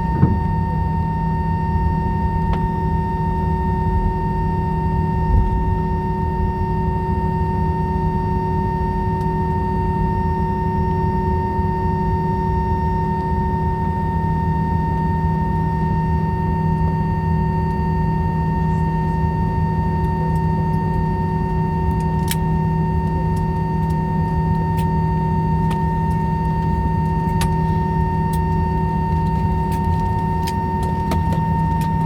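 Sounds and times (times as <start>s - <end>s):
cabin low rumble: 0.0s - 0.8s, 21.8s - 32.0s
high-pitched engine whine: 0.0s - 32.0s.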